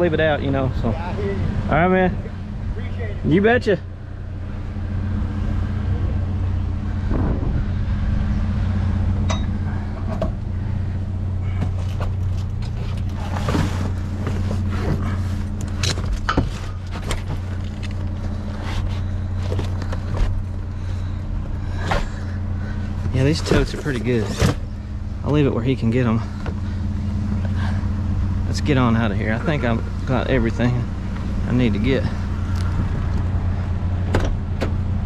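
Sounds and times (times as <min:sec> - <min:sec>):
vehicle engine idling: 0:00.0 - 0:35.0
knocks and rattles: 0:11.4 - 0:20.7.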